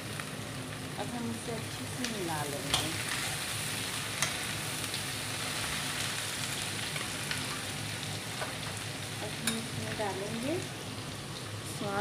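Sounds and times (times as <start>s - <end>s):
vegetables sizzling in hot oil: 0.0s - 12.0s
metal spoon clinking on pan: 9.4s - 9.8s.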